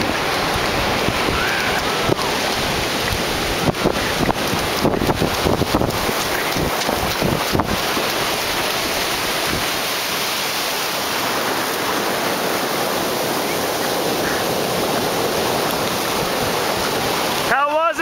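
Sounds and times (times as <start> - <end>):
wind buffeting microphone: 0.0 - 10.2
ocean surf rushing: 0.0 - 18.0.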